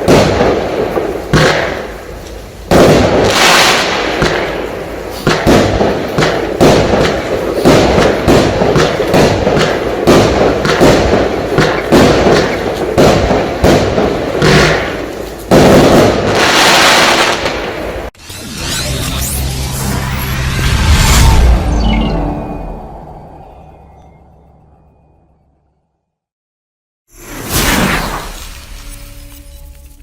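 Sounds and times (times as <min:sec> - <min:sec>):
firework barrage bangs: 0:00.0 - 0:18.1, 0:27.2 - 0:29.0.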